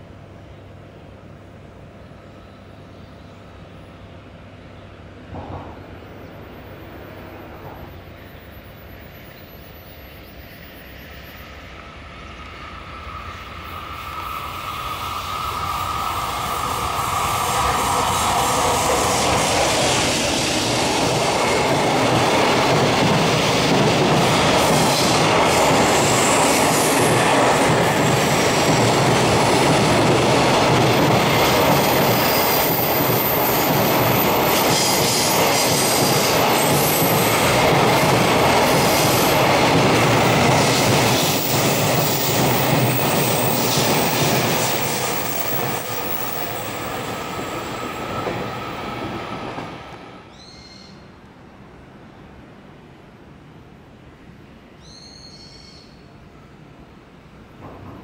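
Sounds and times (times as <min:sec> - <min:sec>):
locomotive high whine: 0:03.4 - 0:50.5
train wheels on rails: 0:05.2 - 0:51.0, 0:57.4 - 0:58.0.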